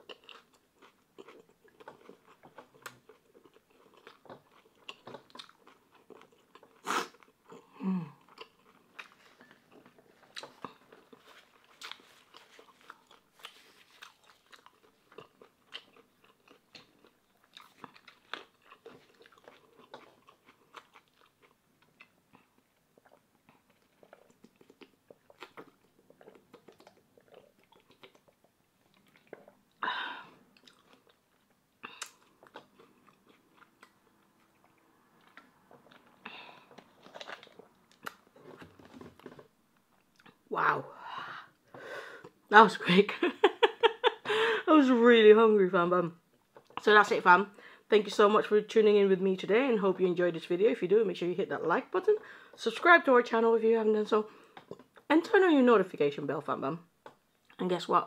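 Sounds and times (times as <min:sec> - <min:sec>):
close-up chewing: 0:00.0 - 0:40.5, 0:46.3 - 0:46.8, 0:54.3 - 0:55.1.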